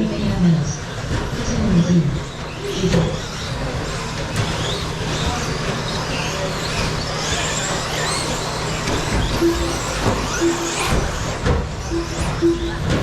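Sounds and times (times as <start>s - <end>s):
electric motors whining: 0.0s - 13.0s
short timing beeps: 9.3s - 13.0s.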